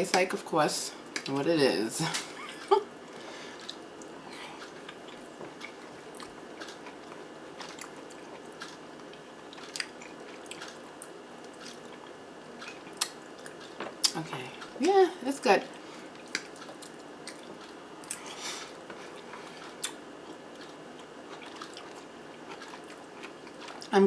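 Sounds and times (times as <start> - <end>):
wet chewing clicks: 3.6 - 14.8, 16.2 - 18.2, 19.1 - 23.9.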